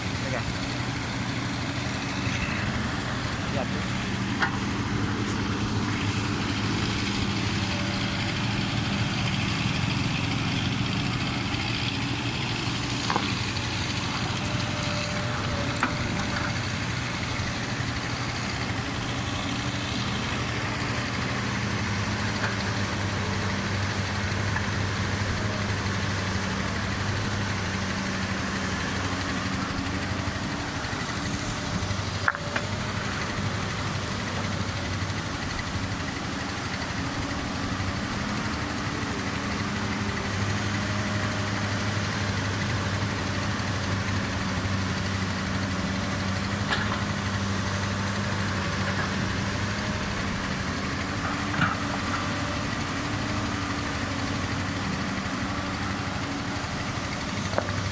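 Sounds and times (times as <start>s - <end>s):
excavator engine running: 0.0s - 57.9s.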